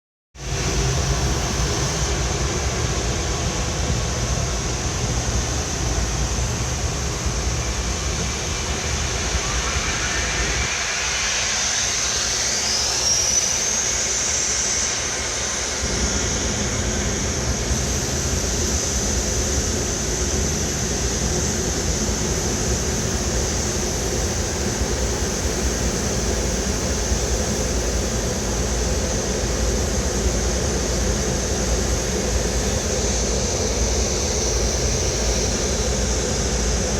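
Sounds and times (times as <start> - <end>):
high constant whine: 0.4 - 36.9
jet airliner low rumble: 0.4 - 36.9
whine rising in pitch: 6.8 - 19.8.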